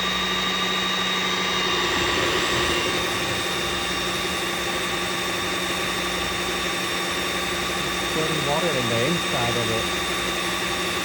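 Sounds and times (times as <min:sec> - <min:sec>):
floor washer running: 0:00.0 - 0:11.0.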